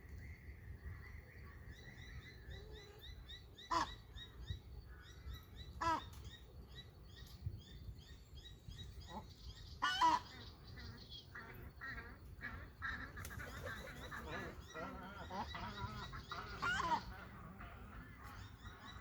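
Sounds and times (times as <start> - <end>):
birds chirping: 0.0 - 19.0
loud harsh bird call: 9.8 - 19.0
low ambient rumble: 13.9 - 19.0.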